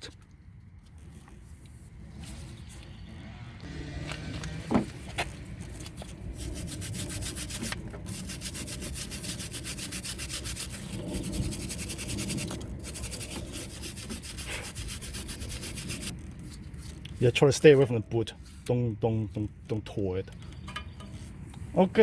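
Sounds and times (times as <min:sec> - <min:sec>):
wire brush scrubbing metal: 0:05.7 - 0:18.7.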